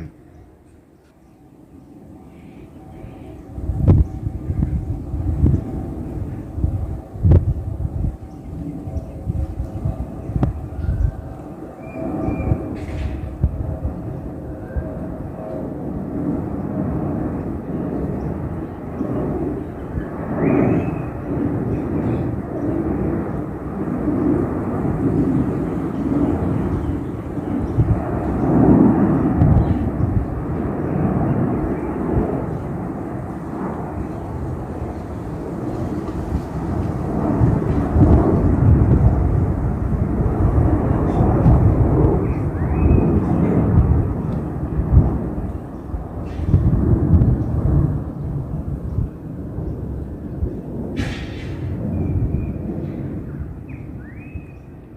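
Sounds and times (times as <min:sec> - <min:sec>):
jet engines rumbling: 0:00.0 - 0:54.9.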